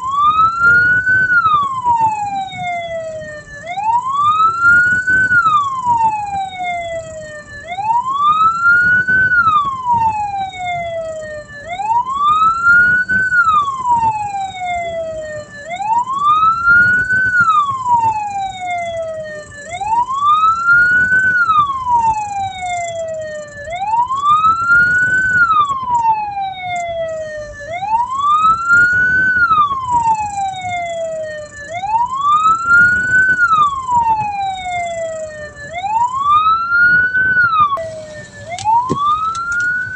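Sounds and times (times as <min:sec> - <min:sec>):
low road rumble: 0:00.0 - 0:39.9
siren wailing: 0:00.0 - 0:39.9.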